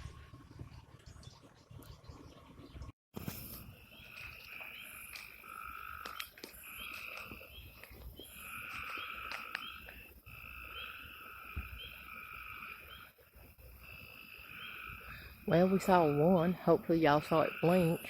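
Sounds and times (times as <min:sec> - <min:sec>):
frogs trilling: 0:03.7 - 0:18.0.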